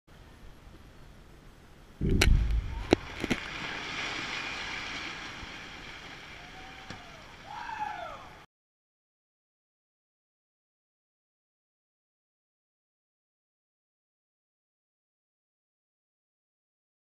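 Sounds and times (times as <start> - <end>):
hiss and rumble: 0.1 - 3.8
deep explosion boom: 2.0 - 3.4
sharp cracks: 2.0 - 3.6.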